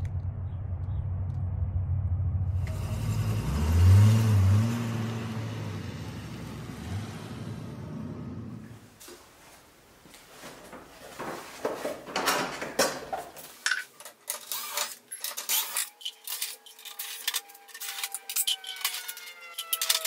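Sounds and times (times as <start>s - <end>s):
hands clattering plastic panels: 11.3s - 20.0s
screws clicking: 14.2s - 20.0s.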